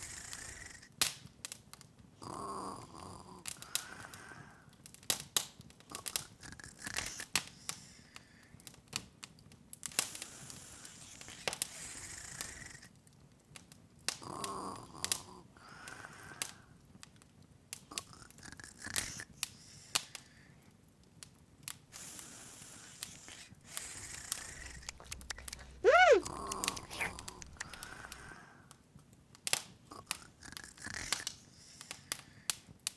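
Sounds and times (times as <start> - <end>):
fire hissing softly: 21.8 - 28.4, 30.4 - 32.9.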